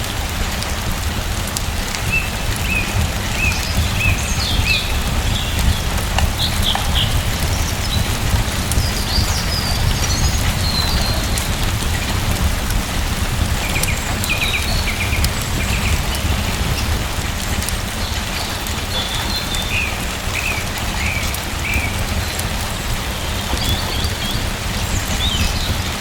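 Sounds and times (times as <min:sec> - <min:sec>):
steady rain hissing: 0:00.0 - 0:26.0.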